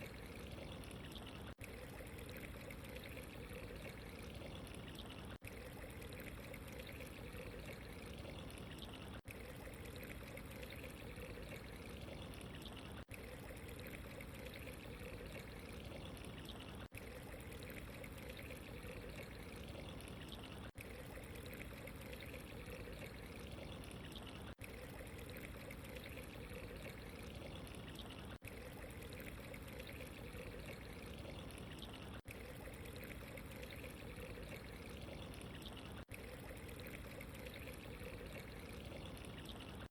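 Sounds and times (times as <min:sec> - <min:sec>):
running trickling water: 0:00.0 - 0:39.9.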